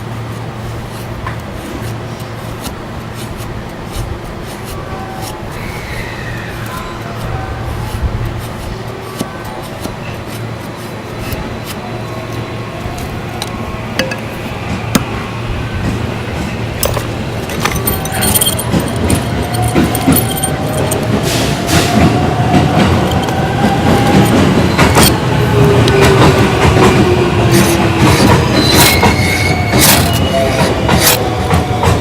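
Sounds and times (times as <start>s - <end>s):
thin whistling from burning wood: 4.8s - 7.3s, 27.5s - 31.3s.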